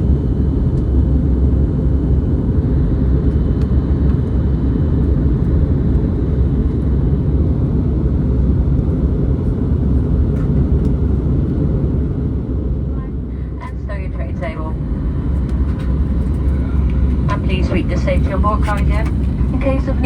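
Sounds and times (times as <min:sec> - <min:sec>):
airliner cabin engine rumble: 0:00.0 - 0:20.0
faint steady hum: 0:12.2 - 0:20.0.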